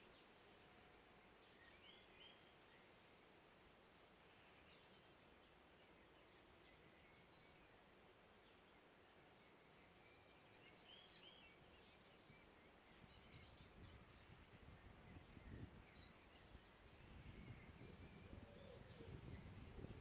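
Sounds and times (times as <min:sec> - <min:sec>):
songbirds chirping and warbling: 0:00.0 - 0:20.0.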